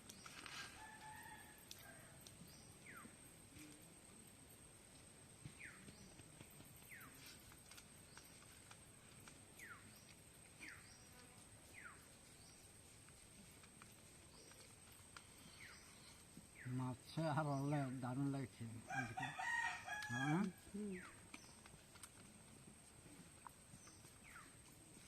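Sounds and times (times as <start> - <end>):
high thin insect-like whine: 9.6 - 21.5.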